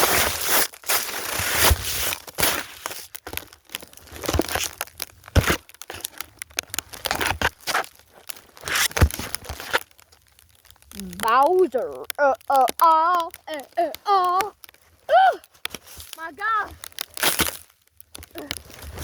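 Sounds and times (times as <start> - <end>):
snow crunching: 0.0 - 3.1, 12.9 - 17.7, 18.6 - 19.0.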